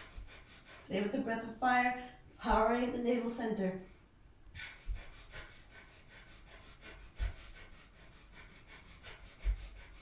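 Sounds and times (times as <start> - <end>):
rapid forceful nose breathing: 0.0 - 0.8, 4.6 - 10.0.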